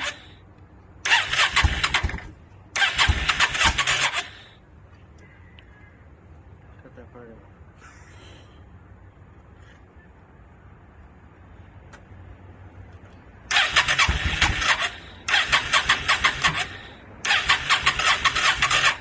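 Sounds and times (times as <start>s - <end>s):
motorcycle engine cranking on starter: 0.0s - 0.3s, 1.0s - 4.5s, 13.5s - 19.0s.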